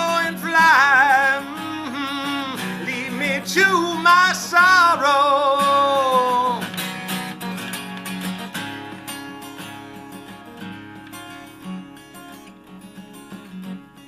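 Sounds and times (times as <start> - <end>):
person singing: 0.0 - 6.8
acoustic guitar: 0.0 - 14.0.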